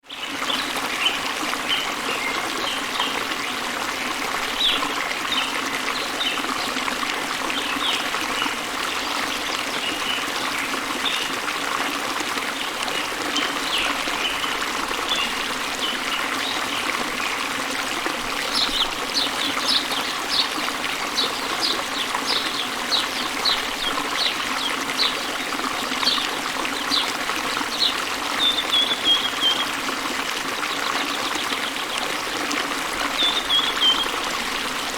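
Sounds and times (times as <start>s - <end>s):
waterfall rushing: 4.4s - 34.9s
songbirds chirping: 18.4s - 29.8s, 33.0s - 34.7s.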